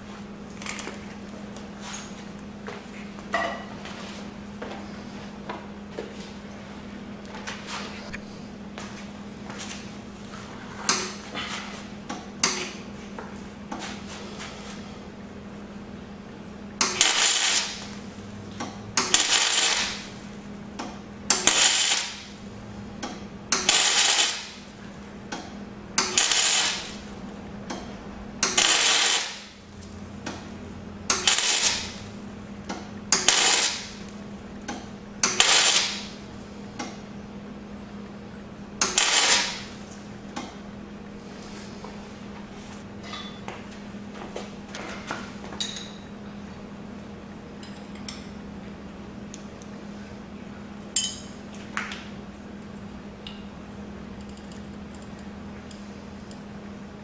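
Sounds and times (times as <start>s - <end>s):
welder crackling bursts: 16.8s - 18.0s, 18.9s - 20.3s, 21.3s - 22.4s, 23.5s - 24.7s, 26.0s - 27.2s, 28.4s - 29.6s, 31.1s - 32.1s, 33.1s - 34.1s, 35.2s - 36.2s, 38.8s - 39.8s.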